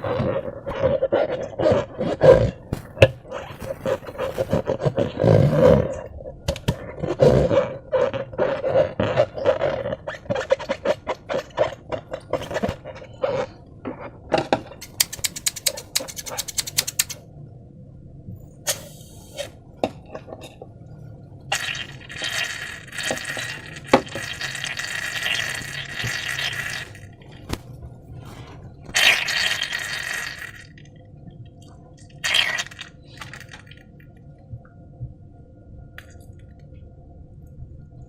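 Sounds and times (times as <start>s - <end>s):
slime squelching by hand: 0.0s - 6.1s, 21.5s - 30.8s, 32.0s - 34.0s
sharp slime clicks: 14.8s - 17.2s.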